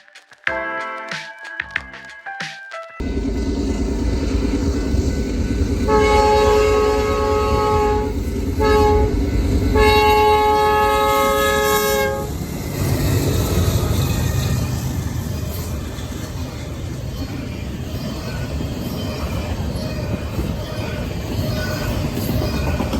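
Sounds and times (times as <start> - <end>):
train rumbling: 3.0 - 22.9
locomotive air horn: 5.9 - 12.4.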